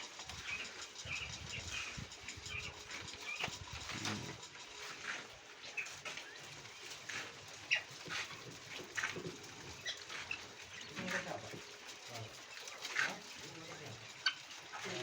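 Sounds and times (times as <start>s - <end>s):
quail chirping: 0.4s - 4.3s, 5.6s - 11.5s, 12.2s - 15.0s.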